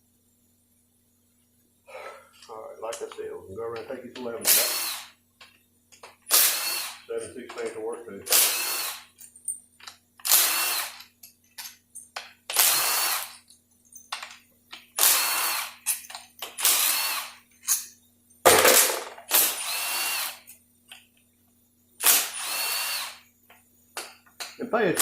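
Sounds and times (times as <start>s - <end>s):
cordless power driver whirring: 6.3s - 7.0s, 8.3s - 9.0s, 10.2s - 11.0s, 16.6s - 17.4s, 18.9s - 20.4s, 22.0s - 23.2s.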